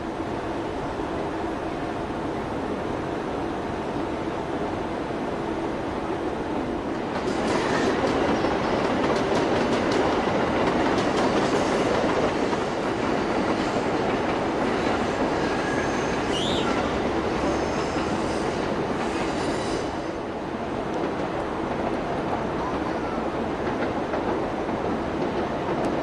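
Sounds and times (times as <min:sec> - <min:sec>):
train wheels clicking on rails: 0:06.8 - 0:26.0
high wheel squeal: 0:15.4 - 0:20.1.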